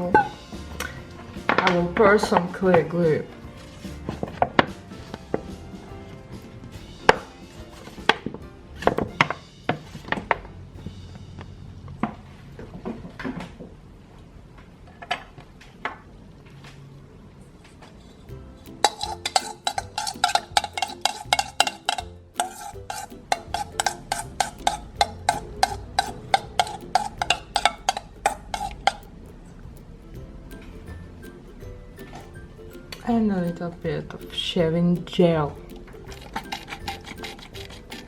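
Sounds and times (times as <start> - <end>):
utensil clicking against bowl: 18.8 - 29.8, 35.0 - 38.0.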